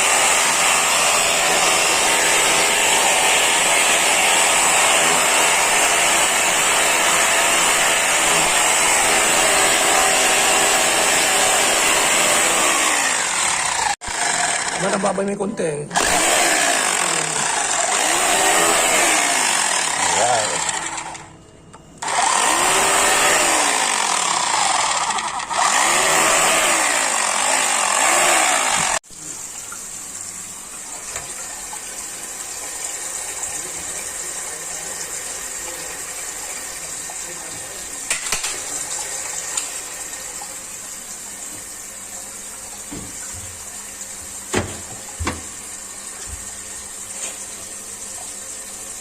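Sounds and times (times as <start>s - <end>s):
rotary hammer drill running: 0.0s - 15.1s, 15.9s - 21.4s, 22.0s - 29.0s.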